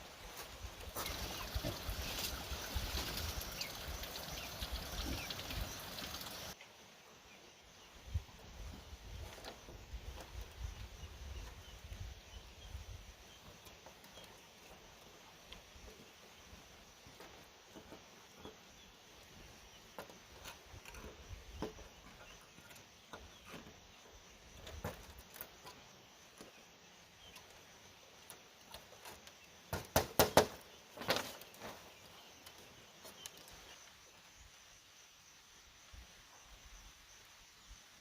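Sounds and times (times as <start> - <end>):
faint background hiss: 0.0 - 38.0
sharp strikes on bamboo: 29.7 - 30.6.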